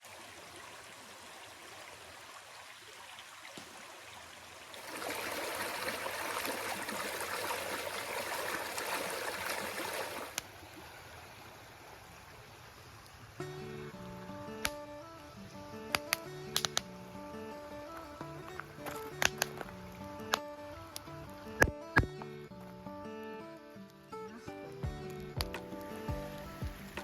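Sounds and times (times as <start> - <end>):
stream of running water: 0.0 - 22.1, 25.0 - 27.0.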